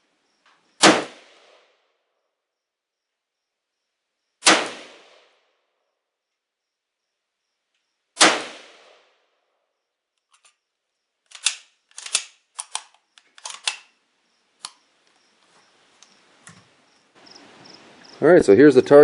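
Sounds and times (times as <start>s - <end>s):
rifle shot with echo: 0.8s - 1.6s, 4.4s - 5.3s, 8.2s - 9.1s
metallic clicks and clacks: 11.3s - 13.9s.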